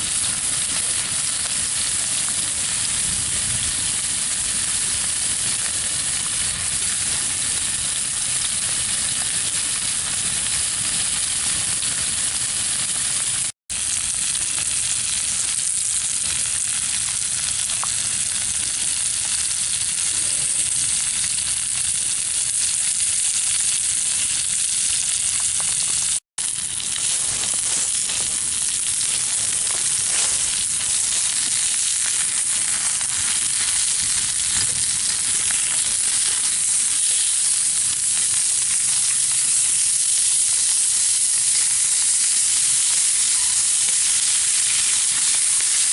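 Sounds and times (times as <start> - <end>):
meat sizzling on a griddle: 0.0 - 45.9.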